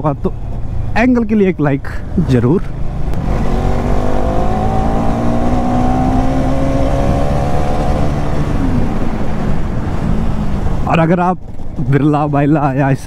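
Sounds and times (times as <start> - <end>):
road rumble: 0.0 - 13.0
motorcycle engine cruising: 2.2 - 11.8.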